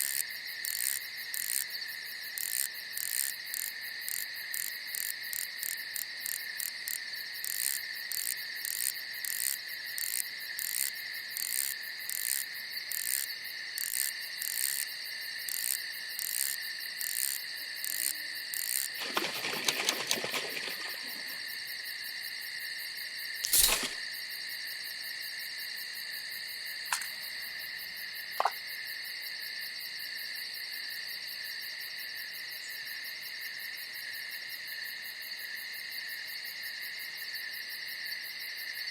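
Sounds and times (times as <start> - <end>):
crickets trilling: 0.0 - 38.9
brief rustle: 19.0 - 21.4, 23.4 - 24.1
sharp click: 23.4 - 24.0, 26.9 - 27.3.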